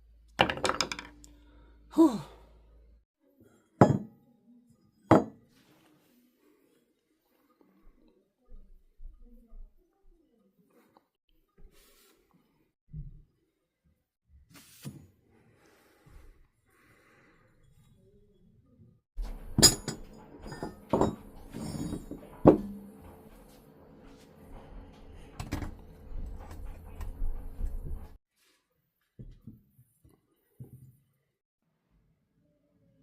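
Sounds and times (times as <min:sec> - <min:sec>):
sharp metallic clinks and knocks: 0:19.2 - 0:22.6.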